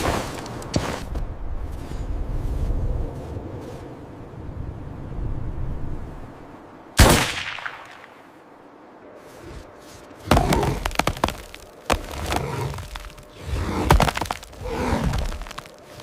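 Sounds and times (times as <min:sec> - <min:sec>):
cluster of cracks: 0:10.3 - 0:16.0.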